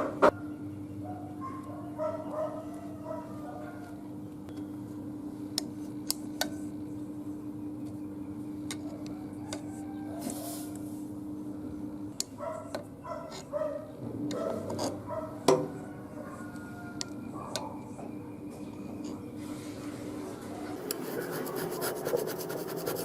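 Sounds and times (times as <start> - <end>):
steady hum: 20.8 - 23.0
rubbing and scraping: 20.9 - 23.0.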